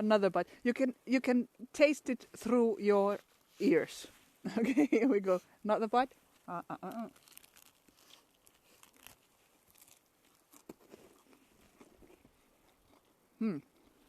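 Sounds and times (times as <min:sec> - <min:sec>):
chewing crunchy sausage: 0:06.7 - 0:14.0.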